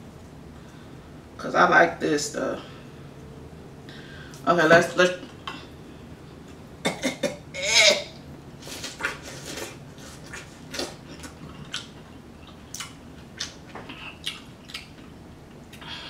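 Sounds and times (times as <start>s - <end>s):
chewing with wet mouth smacks: 8.8s - 15.8s.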